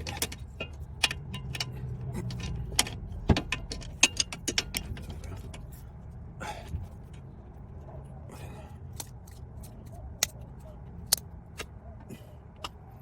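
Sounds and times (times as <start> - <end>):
metal tools clicking and clinking: 0.0 - 5.8.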